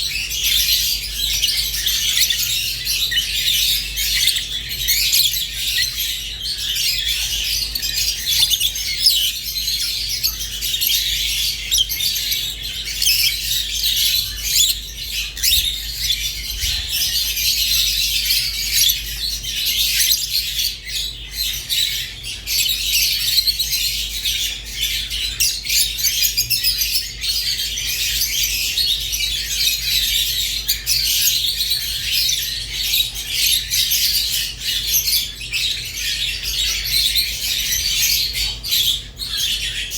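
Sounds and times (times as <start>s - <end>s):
lovebirds twittering and squawking: 0.0s - 39.9s.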